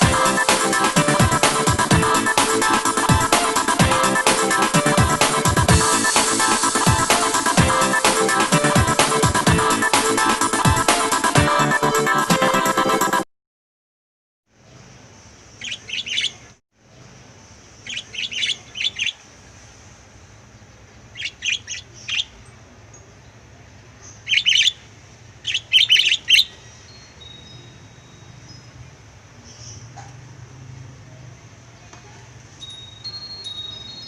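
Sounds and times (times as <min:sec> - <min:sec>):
lovebirds chirping: 0:14.6 - 0:30.0, 0:31.8 - 0:34.0
faint steady hiss: 0:16.3 - 0:24.2.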